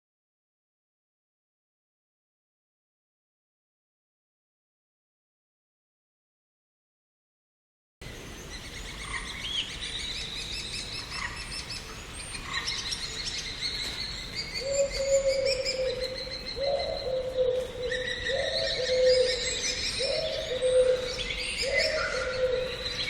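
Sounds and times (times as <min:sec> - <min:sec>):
small birds chirping and trilling: 0:08.0 - 0:23.0
low rising bird call: 0:12.4 - 0:23.0.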